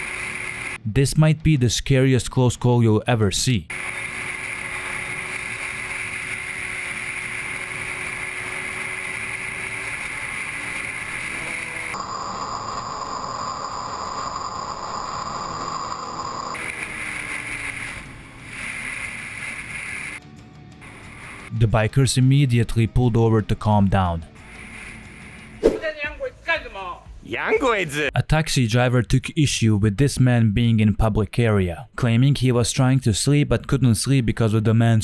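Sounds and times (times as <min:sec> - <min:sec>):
faint engine drone: 0:00.0 - 0:00.8, 0:03.7 - 0:20.2, 0:20.8 - 0:21.6
wind and road noise: 0:03.7 - 0:20.2.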